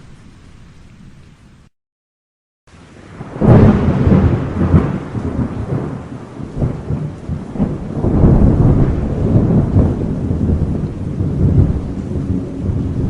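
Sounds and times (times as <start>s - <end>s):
rain falling: 0.0s - 1.7s, 2.7s - 13.0s
thunder rumbling: 2.9s - 13.0s.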